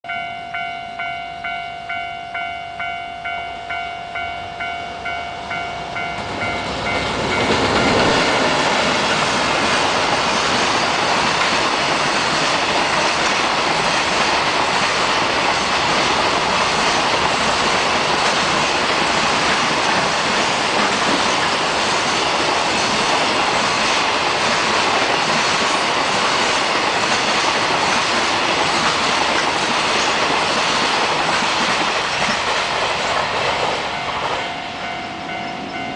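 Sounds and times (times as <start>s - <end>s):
warning bell ringing: 0.0s - 9.3s, 33.9s - 35.9s
freight train passing: 0.0s - 35.9s
wheels clacking over rail joints: 5.9s - 35.9s.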